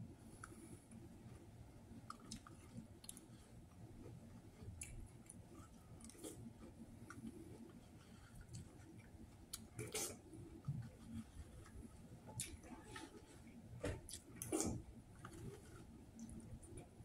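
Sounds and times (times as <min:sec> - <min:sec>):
faint chewing of cereal: 0:00.2 - 0:17.0.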